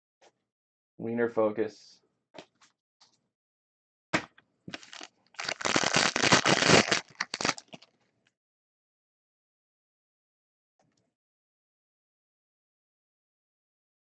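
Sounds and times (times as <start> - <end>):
plastic wrapper crinkling: 4.7 - 8.0.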